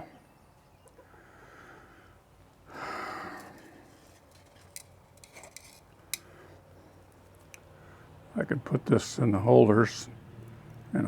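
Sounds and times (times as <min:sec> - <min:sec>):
breathy rush of noise: 0:01.1 - 0:04.2
small metal parts clicking: 0:03.4 - 0:06.3.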